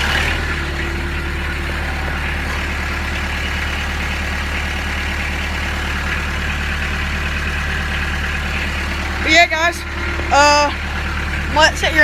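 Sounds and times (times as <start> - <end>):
small diesel engine idling: 0.0 - 12.0.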